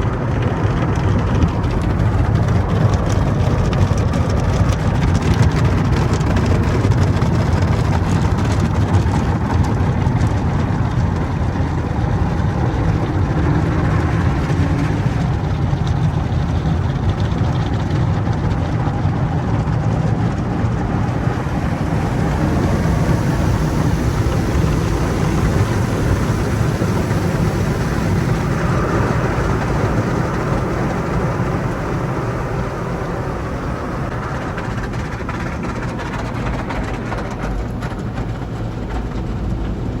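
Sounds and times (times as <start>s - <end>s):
car wash equipment rumbling: 0.0s - 40.0s
rush of noise: 0.0s - 40.0s.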